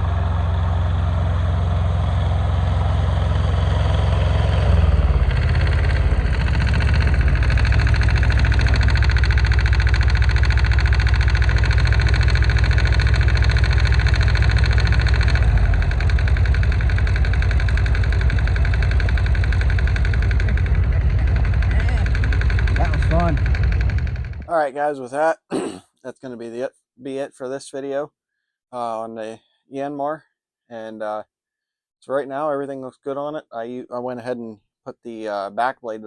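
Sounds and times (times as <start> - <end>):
tractor diesel engine running: 0.0 - 24.5.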